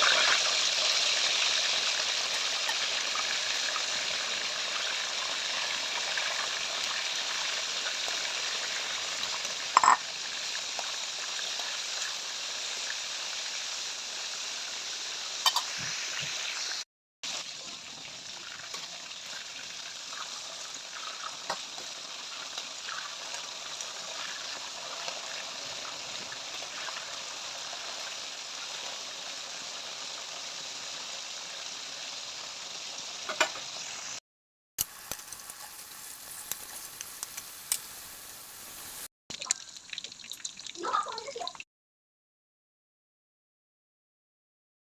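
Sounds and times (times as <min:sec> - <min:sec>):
chicken frying in hot oil: 0:00.0 - 0:34.2, 0:34.8 - 0:41.6.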